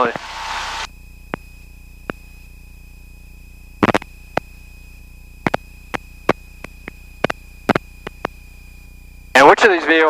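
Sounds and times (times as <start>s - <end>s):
electrical hum with high whine: 0.0s - 10.0s
sharp clicks: 3.8s - 4.5s, 5.4s - 8.4s.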